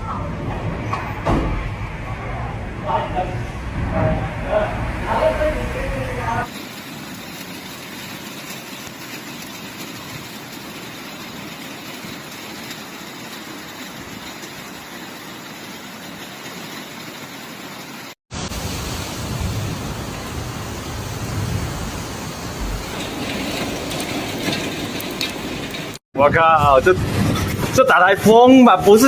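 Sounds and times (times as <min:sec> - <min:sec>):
gusty wind on microphone: 0:00.0 - 0:06.4, 0:18.3 - 0:28.2
heavy rain: 0:02.6 - 0:26.0.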